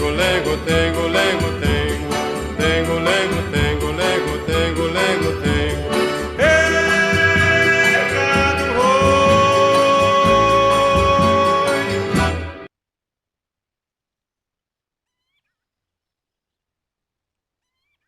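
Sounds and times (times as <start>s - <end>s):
instrumental backing: 0.0s - 12.7s
voice holding wordless notes: 0.0s - 12.7s.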